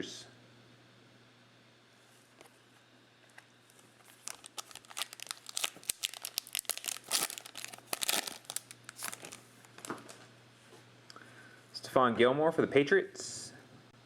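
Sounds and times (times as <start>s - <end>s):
wrapper being torn and crinkled: 3.7s - 10.2s.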